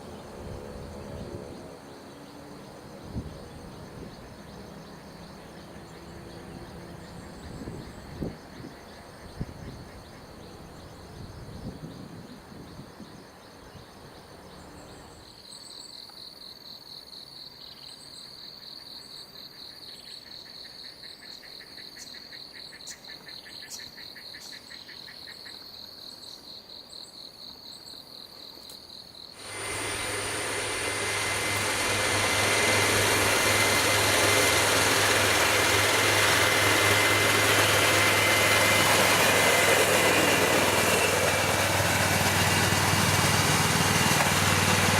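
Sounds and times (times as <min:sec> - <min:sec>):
small engine running: 0:00.0 - 0:08.7, 0:29.4 - 0:44.9
insects chirping: 0:00.0 - 0:43.6.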